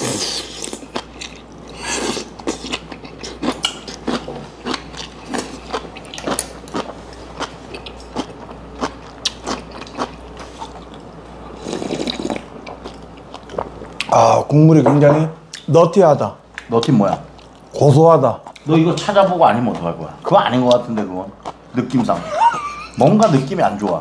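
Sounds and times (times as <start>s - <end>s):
man chewing: 0.0s - 14.2s
slurping broth: 11.6s - 12.4s.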